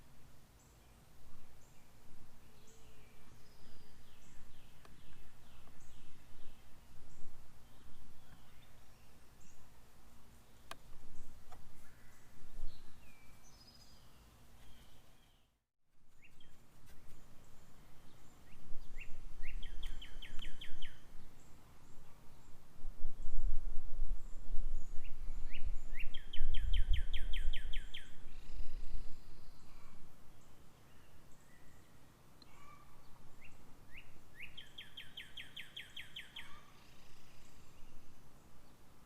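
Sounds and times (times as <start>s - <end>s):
songbird trills: 0.6s - 15.5s, 16.1s - 22.6s, 24.8s - 38.8s.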